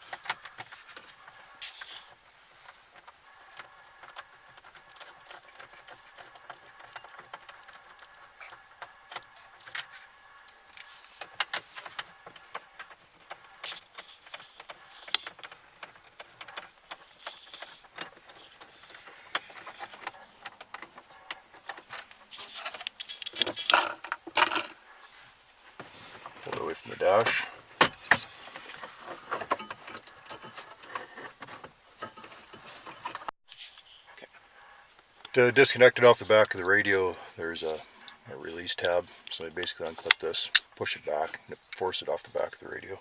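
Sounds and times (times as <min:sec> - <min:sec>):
hand tool clicks and metal rattles: 0:21.7 - 0:24.8
metal clatter: 0:21.7 - 0:24.8.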